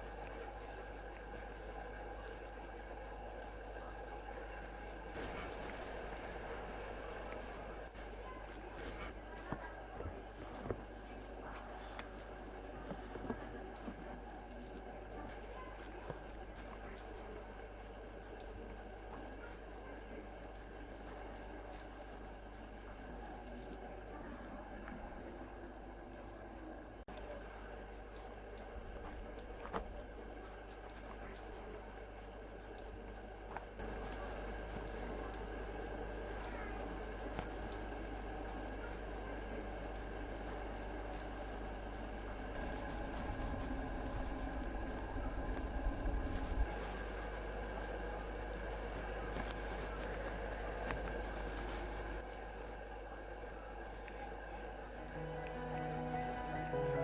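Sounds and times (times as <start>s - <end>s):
small songbird calling: 5.2s - 26.5s, 27.2s - 43.2s.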